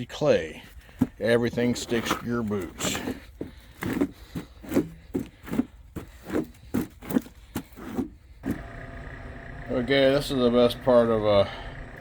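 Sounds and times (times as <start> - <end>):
boots on muddy ground: 0.5 - 8.6.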